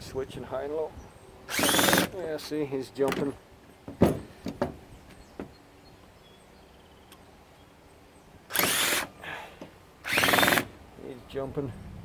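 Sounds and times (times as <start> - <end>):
drill bit clicking: 1.5 - 2.1, 8.5 - 9.1, 10.1 - 10.7
cordless drill motor whine: 1.5 - 2.2, 8.5 - 9.1, 10.0 - 10.7.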